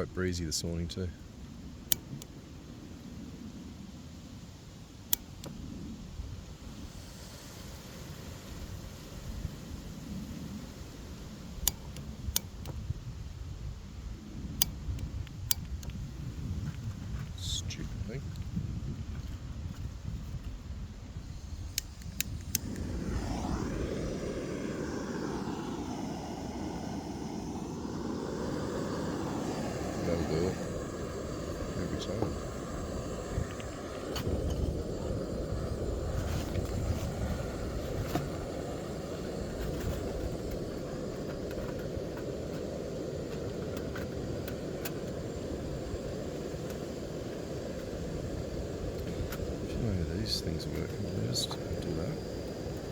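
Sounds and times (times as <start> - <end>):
gas burner hissing: 0.0 - 3.4, 4.9 - 20.4, 21.1 - 52.9
stove igniter clicks: 1.8 - 2.3, 5.1 - 5.6, 11.6 - 12.8, 14.5 - 16.0, 21.7 - 22.9.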